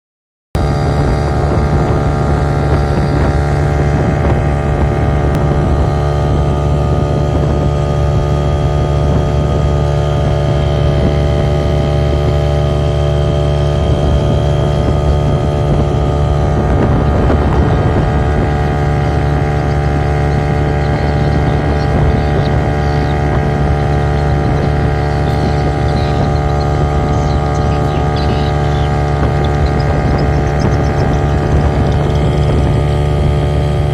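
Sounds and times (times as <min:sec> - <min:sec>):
boat engine humming: 0:00.6 - 0:33.9.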